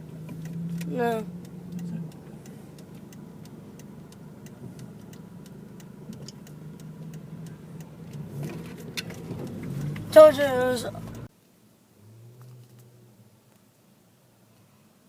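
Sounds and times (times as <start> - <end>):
car engine idling: 0.0 - 14.0
light ticks: 0.1 - 10.1.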